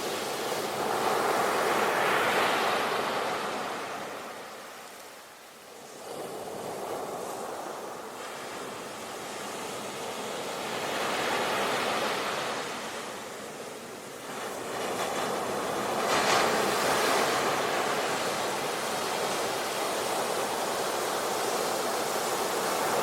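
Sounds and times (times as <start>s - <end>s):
ocean waves breaking on beach: 0.0s - 23.0s.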